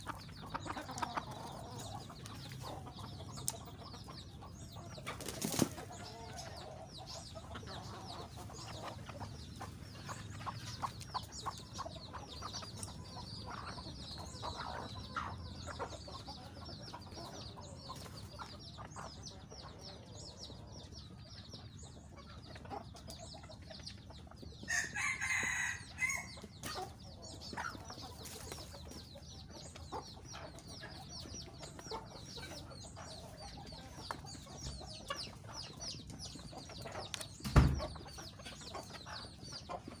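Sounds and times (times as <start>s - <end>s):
chickens clucking: 0.0s - 40.0s
rooster crowing: 24.7s - 26.3s.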